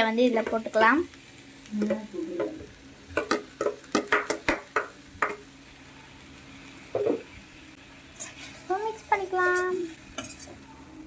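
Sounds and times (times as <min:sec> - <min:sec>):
spoon scraping a pan: 0:08.2 - 0:10.7.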